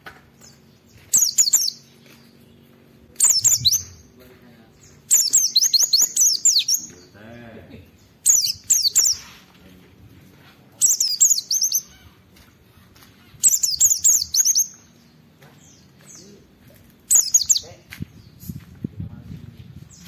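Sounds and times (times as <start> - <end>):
bird twittering: 0.4 - 7.2, 7.9 - 9.5, 10.8 - 16.4, 17.1 - 18.6.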